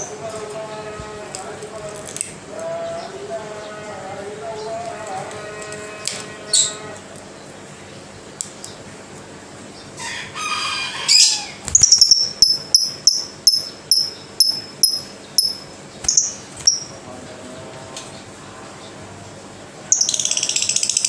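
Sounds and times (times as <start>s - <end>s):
sharp high bird chirps: 11.7s - 17.0s.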